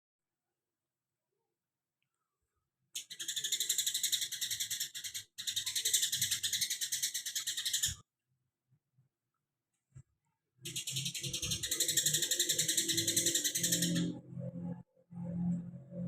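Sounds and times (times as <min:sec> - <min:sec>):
songbird rapid chatter: 0:03.0 - 0:08.0, 0:10.7 - 0:14.2.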